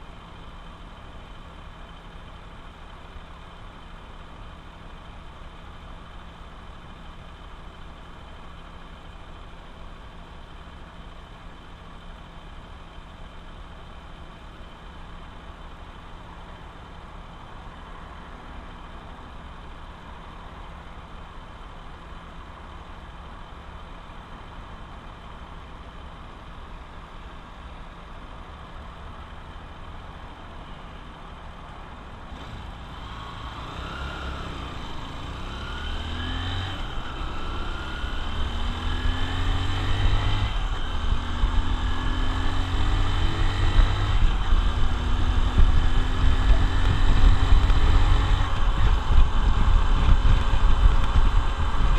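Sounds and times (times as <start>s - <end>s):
motorcycle engine accelerating: 32.3s - 51.9s.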